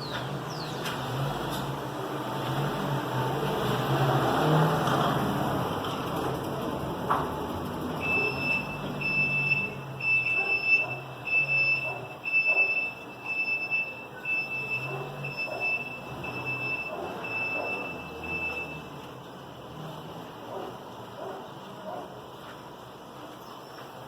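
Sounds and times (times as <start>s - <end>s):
street traffic rumble: 0.0s - 24.0s
high electronic beeps: 8.0s - 18.9s.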